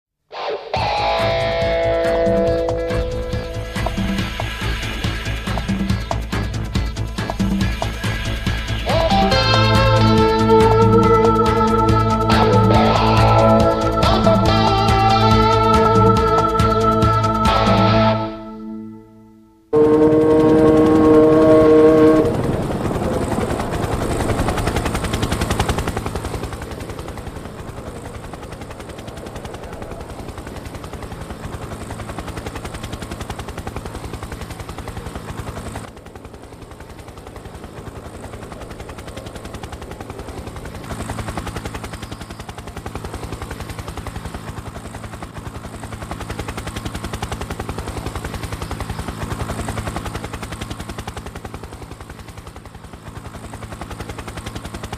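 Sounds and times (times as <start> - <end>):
racing car engines at high revs: 19.8 - 22.6.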